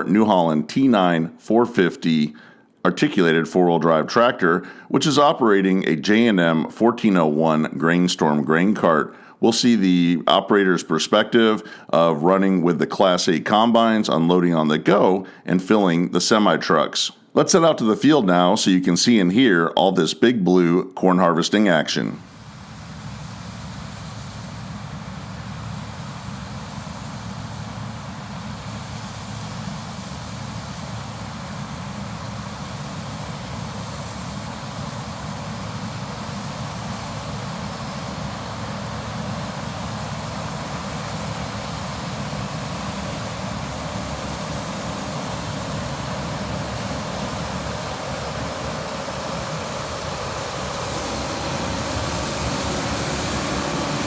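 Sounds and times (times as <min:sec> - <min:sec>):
combine harvester running: 0:22.3 - 0:54.0.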